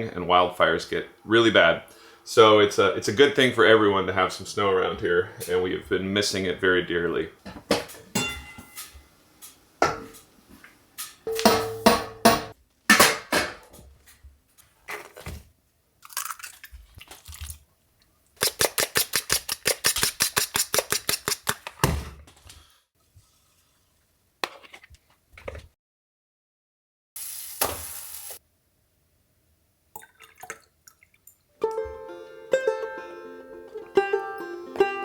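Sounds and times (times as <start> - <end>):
dishes and utensils clinking: 7.5 - 10.3, 11.0 - 13.3
short hiss: 27.2 - 28.4.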